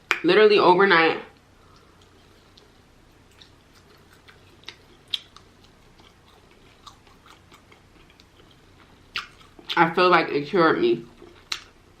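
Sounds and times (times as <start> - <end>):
wet chewing clicks and smacks: 1.7 - 9.8, 11.1 - 11.8.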